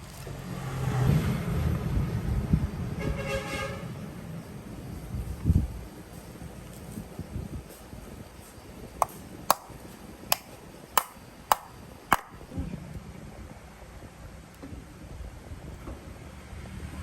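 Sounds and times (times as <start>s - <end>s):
sharp metallic taps: 9.0s - 12.4s.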